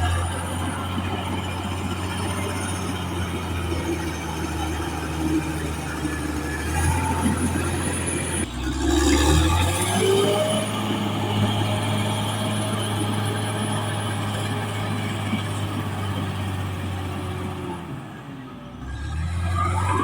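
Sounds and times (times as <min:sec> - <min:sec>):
bulldozer diesel engine: 0:00.0 - 0:20.0
rising whine: 0:19.3 - 0:20.0.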